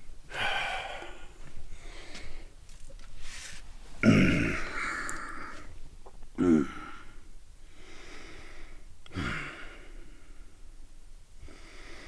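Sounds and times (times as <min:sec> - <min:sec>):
person breathing heavily: 0:00.3 - 0:02.6, 0:03.2 - 0:05.8, 0:06.4 - 0:10.7, 0:11.4 - 0:12.0
person groaning: 0:04.0 - 0:05.6, 0:06.4 - 0:07.1.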